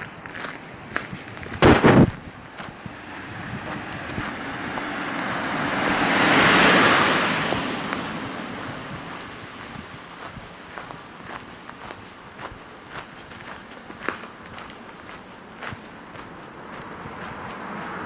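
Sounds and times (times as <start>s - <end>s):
loud crunch: 0.0s - 2.8s, 9.2s - 17.9s
footsteps on forest path: 0.0s - 18.0s
broad rushing noise: 0.6s - 18.0s.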